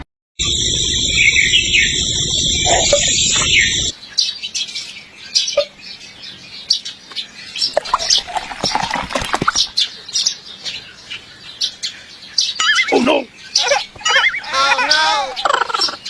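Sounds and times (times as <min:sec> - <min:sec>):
loud dense sound: 0:00.4 - 0:03.9
birds chirping: 0:00.4 - 0:16.0.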